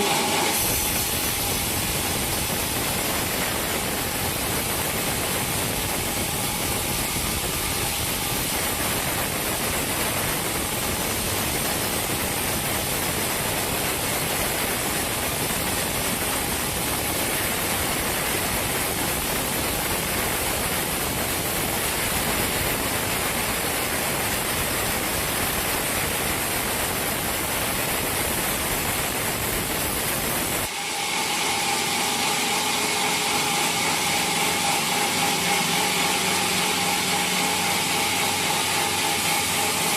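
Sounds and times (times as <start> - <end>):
sawmill machinery hissing: 0.0 - 39.9
humming saw: 30.6 - 39.9.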